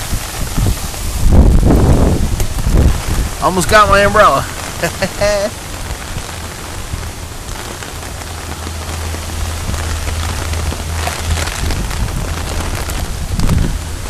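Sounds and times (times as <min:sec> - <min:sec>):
rain falling: 0:00.0 - 0:14.0
low rumble: 0:04.4 - 0:14.0.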